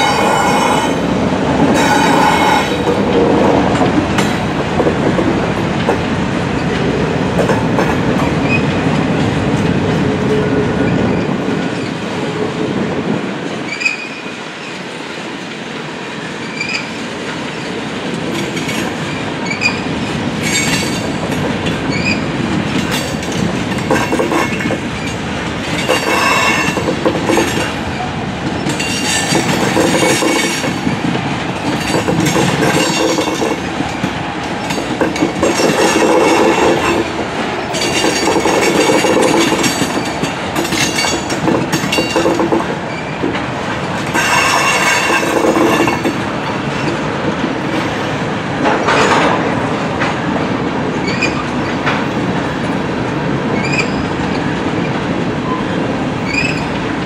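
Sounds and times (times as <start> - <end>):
train wheels clicking over rail joints: 0.0 - 11.9, 16.5 - 57.0
train cars rattling: 0.0 - 15.1, 16.4 - 57.0
high wheel squeals: 56.3 - 56.7.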